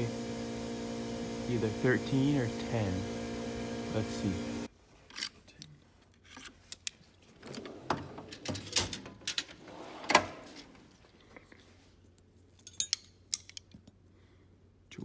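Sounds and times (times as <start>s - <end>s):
metal hand tools clinking: 12.6s - 13.7s.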